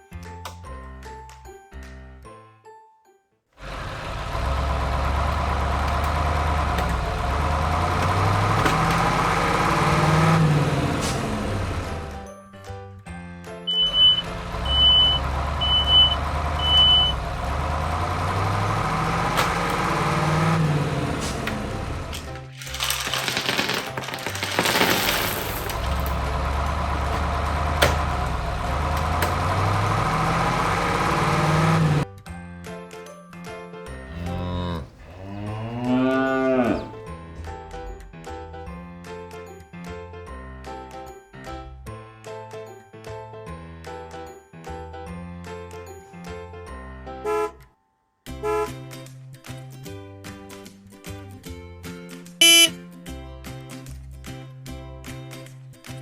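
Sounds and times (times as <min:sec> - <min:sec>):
engine starting and running: 0:03.6 - 0:12.3, 0:13.7 - 0:32.1, 0:34.1 - 0:38.5, 0:52.4 - 0:52.8.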